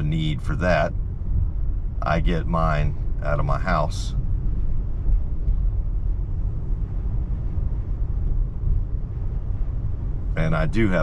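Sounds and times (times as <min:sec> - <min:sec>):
tyre and road noise in car cabin: 0:00.0 - 0:11.0.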